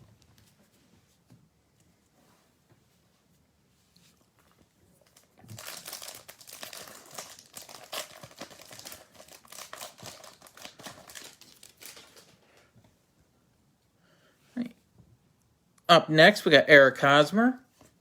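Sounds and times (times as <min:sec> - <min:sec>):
plastic wrapper tearing and crinkling: 0:05.0 - 0:12.7.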